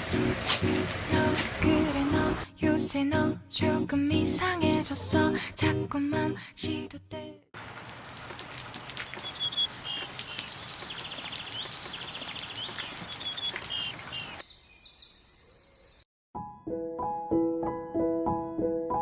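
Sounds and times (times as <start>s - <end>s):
small birds chirping and trilling: 8.6s - 16.0s
soft piano music: 16.4s - 19.0s.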